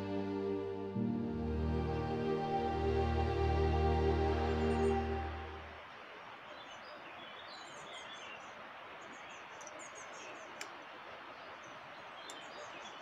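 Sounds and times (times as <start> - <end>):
small birds chirping: 6.5 - 13.0
faint sharp click: 10.6 - 10.8.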